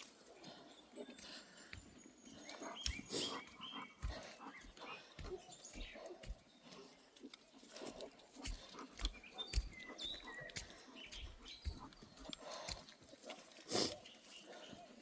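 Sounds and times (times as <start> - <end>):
dog breathing and sniffing: 2.4 - 7.0, 7.6 - 15.0
soft low thumps: 8.4 - 12.4.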